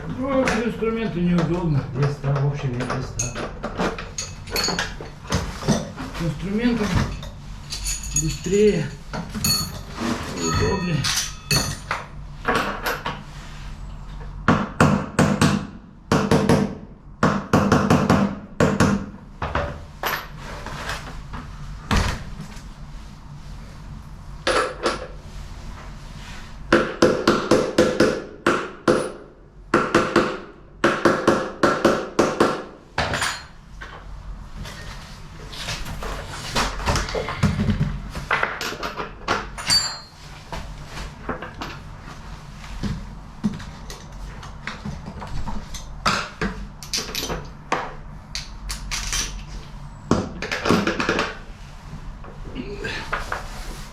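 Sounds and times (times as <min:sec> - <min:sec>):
metal tools clanking: 0:02.0 - 0:06.2, 0:06.8 - 0:12.0, 0:33.0 - 0:33.6, 0:39.6 - 0:40.2.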